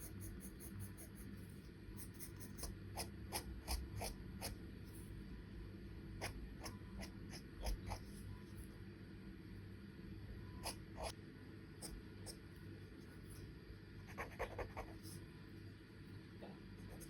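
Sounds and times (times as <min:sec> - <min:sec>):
pencil scratching on paper: 0:14.0 - 0:15.2.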